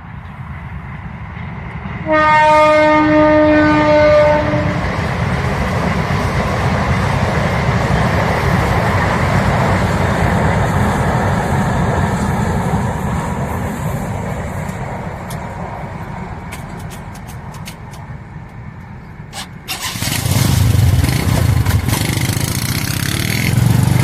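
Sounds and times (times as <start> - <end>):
train rumbling on rails: 0.0 - 24.0
train horn: 2.0 - 4.9.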